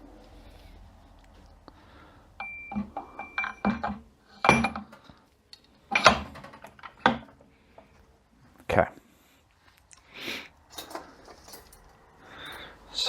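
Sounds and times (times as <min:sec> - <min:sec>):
metal parts clinking and knocking: 0:02.7 - 0:05.0, 0:05.9 - 0:07.4, 0:10.7 - 0:12.6.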